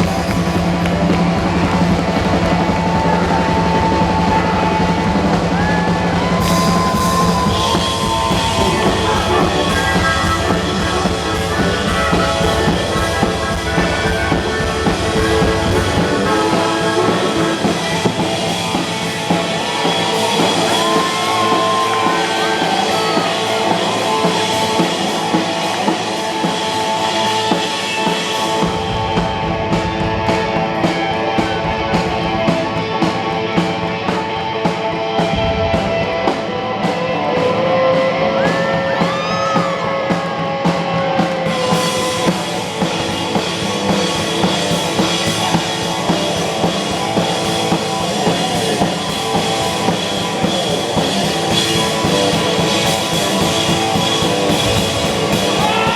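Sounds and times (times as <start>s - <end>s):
deep bass: 0.0s - 26.2s
cymbals: 0.0s - 33.8s
bending guitar notes: 0.0s - 55.9s
live rock band playing: 0.0s - 55.9s.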